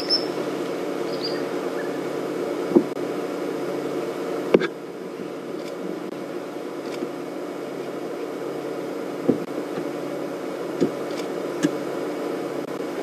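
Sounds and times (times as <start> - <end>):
mechanical hum with hiss: 0.0 - 13.0.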